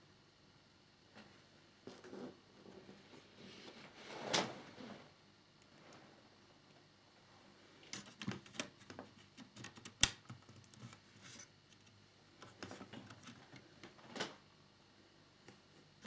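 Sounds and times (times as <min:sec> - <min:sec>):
plastic parts clicking and tapping: 0:08.0 - 0:13.6.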